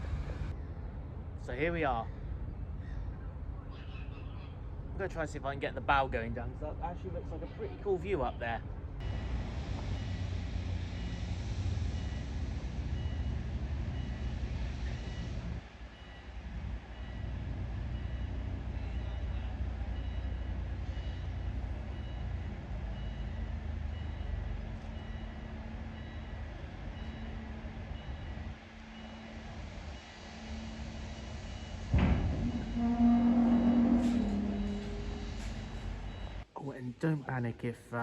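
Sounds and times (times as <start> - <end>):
ship engines rumbling: 0.0 - 38.0
electronic warning beeps: 31.2 - 36.4.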